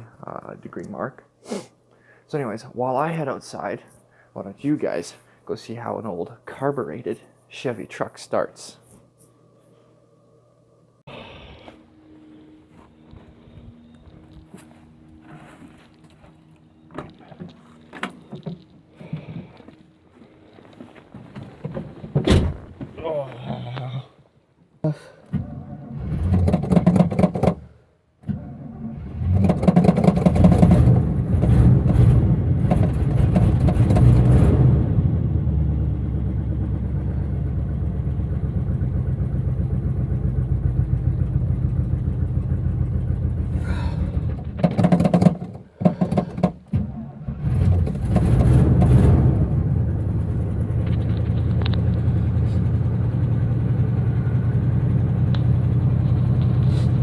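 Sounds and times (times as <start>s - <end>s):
engine running: 28.4s - 46.2s, 47.2s - 57.0s.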